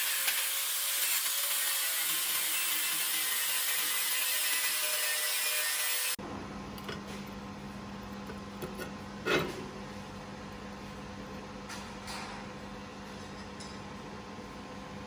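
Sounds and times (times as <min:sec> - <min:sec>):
power tool polishing metal: 0:00.0 - 0:06.2.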